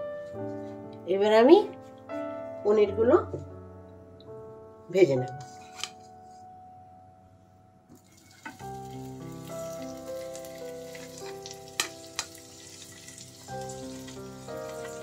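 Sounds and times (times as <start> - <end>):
soft keyboard music: 0.0 - 15.0
cheese sizzling in hot fat: 8.0 - 15.0.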